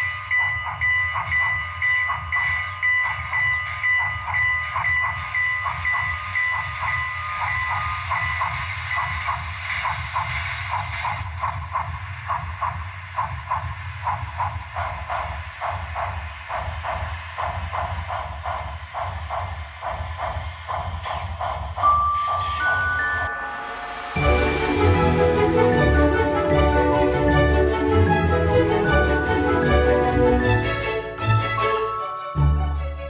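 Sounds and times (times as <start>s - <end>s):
bell dinging: 21.8s - 25.1s.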